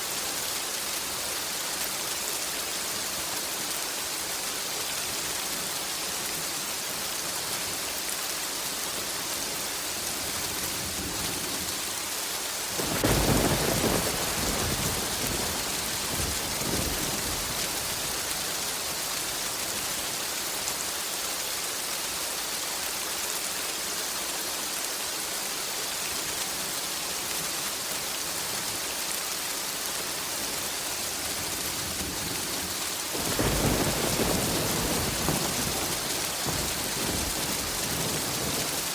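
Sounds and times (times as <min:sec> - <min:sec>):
rain falling: 0:00.0 - 0:38.9
thunderclap rumbling: 0:12.8 - 0:18.2, 0:31.7 - 0:38.9.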